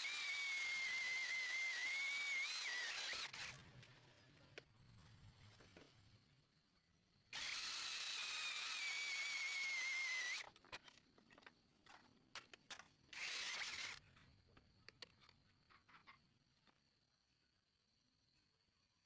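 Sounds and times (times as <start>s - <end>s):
electric drill whining: 0.0s - 3.9s, 7.4s - 10.6s, 13.1s - 14.0s.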